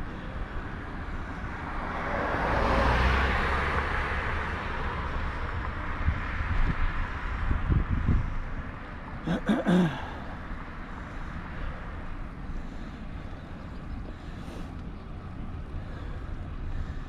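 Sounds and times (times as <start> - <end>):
motor vehicle passing: 0.0 - 8.6
low wind rumble on microphone: 0.0 - 9.3.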